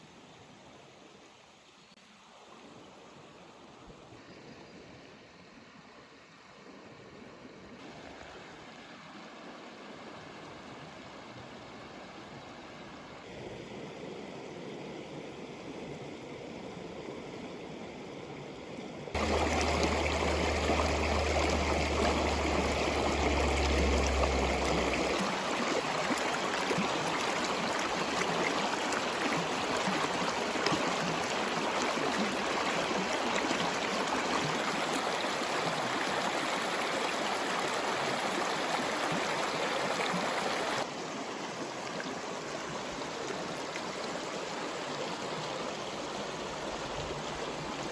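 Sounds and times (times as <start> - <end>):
low hum: 19.2 - 25.9
rushing water: 19.2 - 47.9.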